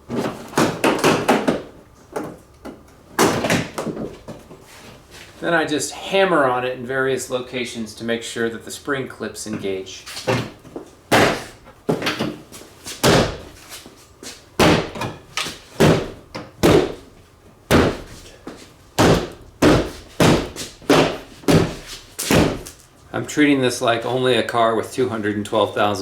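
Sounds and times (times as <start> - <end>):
heavy blows on plastic panel: 0.4 - 1.8, 11.1 - 12.2, 13.0 - 13.6, 14.6 - 17.1, 17.7 - 18.3, 19.0 - 22.8.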